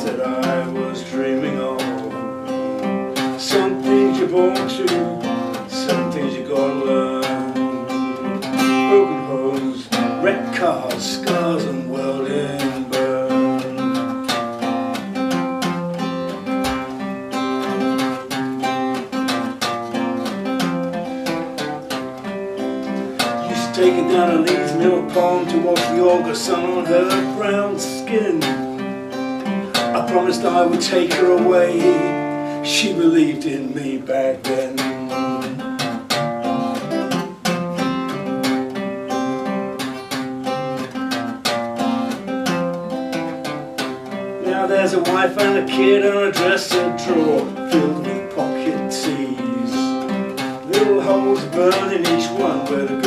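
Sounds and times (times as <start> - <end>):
acoustic guitar picked and strummed: 0.0 - 53.0.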